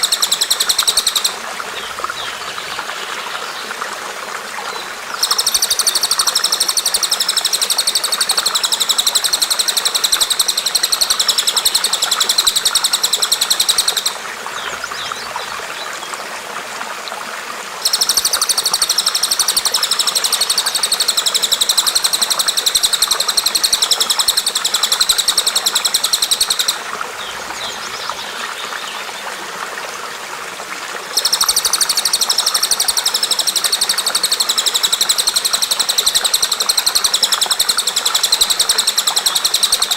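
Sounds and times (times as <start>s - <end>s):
water trickling: 0.0s - 39.9s
songbird buzzing trill: 5.2s - 14.2s.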